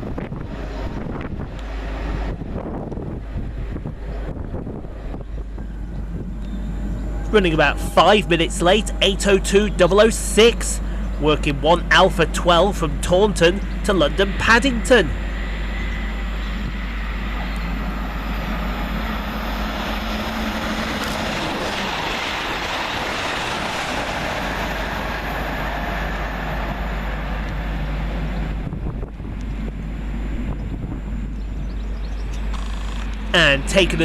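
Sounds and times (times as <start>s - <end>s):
wind buffeting microphone: 0.0s - 9.6s, 15.1s - 34.0s
train passing at speed: 0.0s - 34.0s.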